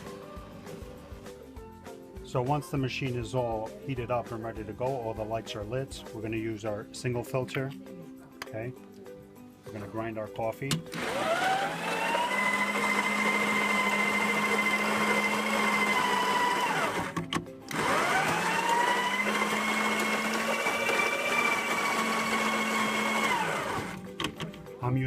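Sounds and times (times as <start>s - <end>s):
electric coffee grinder whine: 10.9s - 24.1s.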